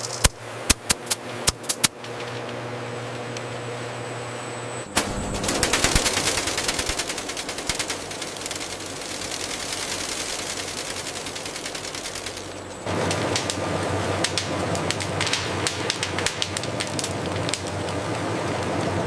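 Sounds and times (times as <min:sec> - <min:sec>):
factory machinery humming: 0:00.0 - 0:19.0
rapid rattling clatter: 0:05.0 - 0:17.8.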